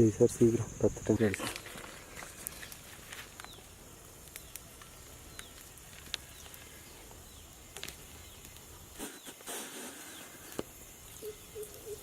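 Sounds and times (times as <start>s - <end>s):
sharp clicks and crackles: 1.2s - 3.6s, 4.2s - 6.8s, 7.7s - 9.6s
bird chirping: 6.2s - 12.0s.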